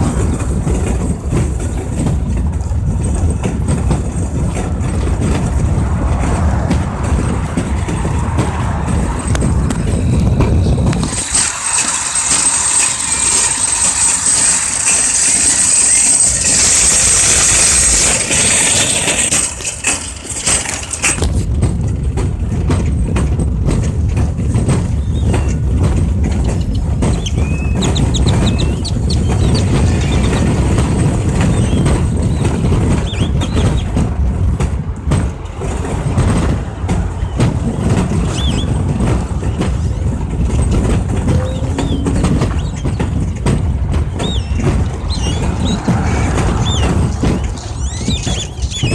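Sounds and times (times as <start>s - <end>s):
steady low rumble: 0.0s - 11.5s, 21.2s - 48.9s
flock of birds chattering: 44.1s - 48.9s.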